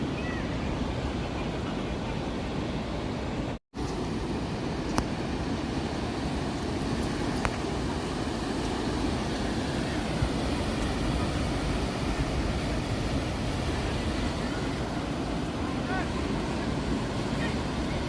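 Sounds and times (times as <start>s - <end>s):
sea surf rumbling: 0.0s - 18.0s.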